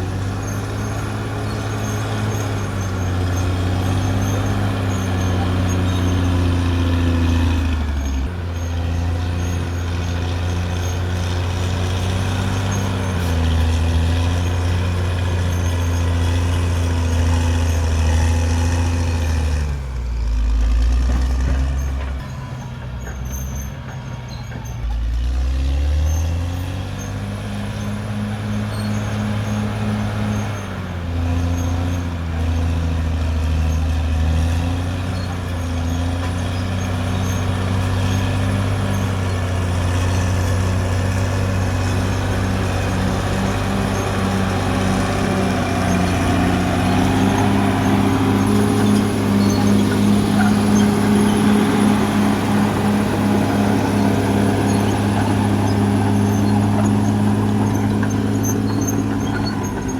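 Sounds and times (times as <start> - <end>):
bulldozer diesel engine working: 0.0 - 59.9.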